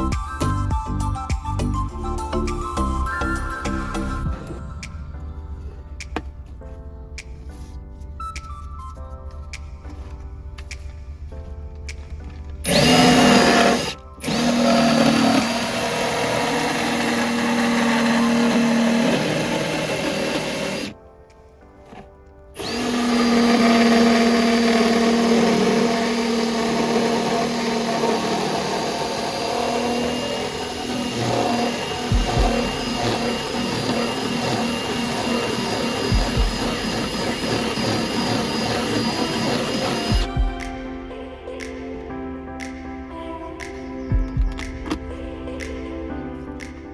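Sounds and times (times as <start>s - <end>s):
small electric motor running: 12.7s - 20.9s, 22.6s - 40.3s
dull low thumps: 32.1s - 32.9s, 36.1s - 36.8s, 40.1s - 41.1s, 44.1s - 45.4s.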